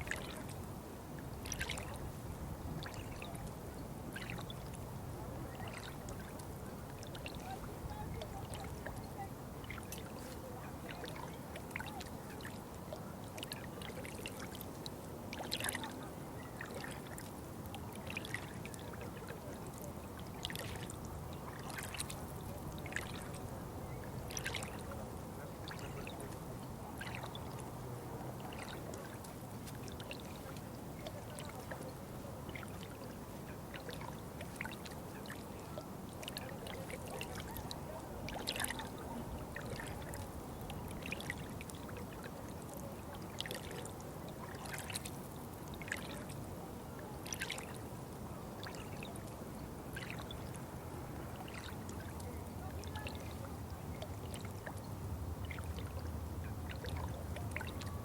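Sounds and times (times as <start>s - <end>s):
water splashes and drips: 0.0s - 0.7s, 1.4s - 2.0s, 2.8s - 4.6s, 5.6s - 31.9s, 32.5s - 46.4s, 47.0s - 47.8s, 48.6s - 58.0s
water trickling and pouring: 24.0s - 25.0s, 32.5s - 45.0s, 45.6s - 46.3s, 51.3s - 54.8s.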